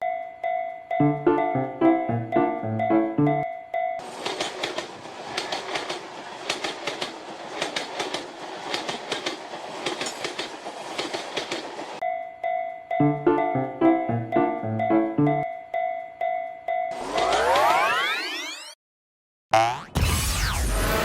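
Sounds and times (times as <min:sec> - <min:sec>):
train rushing noise: 0:04.0 - 0:12.0
train wheels clacking over joints: 0:04.0 - 0:12.0.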